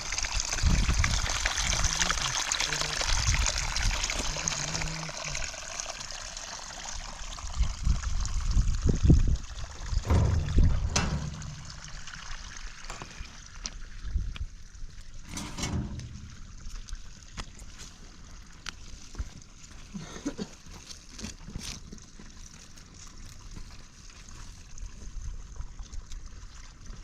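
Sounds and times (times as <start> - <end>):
water trickling: 0.0 - 27.0
low thuds: 9.8 - 12.4, 15.3 - 16.8.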